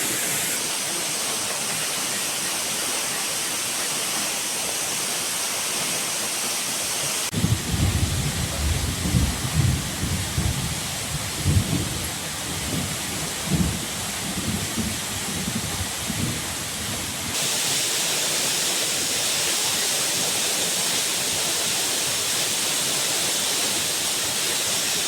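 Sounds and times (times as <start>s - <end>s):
rain hissing: 0.0s - 25.0s
rush of falling water: 0.0s - 25.0s
thunder rumbles: 7.3s - 16.4s.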